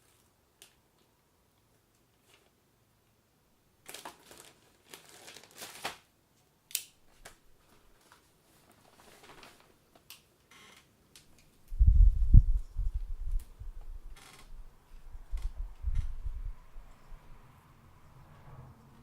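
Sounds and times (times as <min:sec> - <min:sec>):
rustling and crinkling handling: 0:02.1 - 0:02.6, 0:03.8 - 0:06.5, 0:07.1 - 0:10.2.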